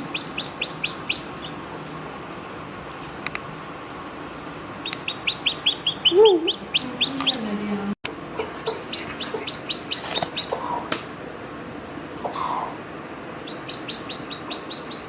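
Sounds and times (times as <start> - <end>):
chicks peeping: 0.0 - 1.9, 4.8 - 7.6, 8.2 - 11.1, 12.2 - 12.8, 13.4 - 15.0
hen calling: 4.8 - 7.4, 8.4 - 10.9, 12.2 - 12.8.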